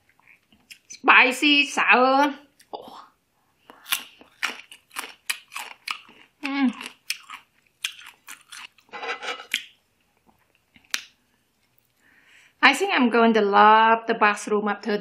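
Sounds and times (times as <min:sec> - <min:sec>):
crunchy chewing of mango: 0:03.7 - 0:12.0.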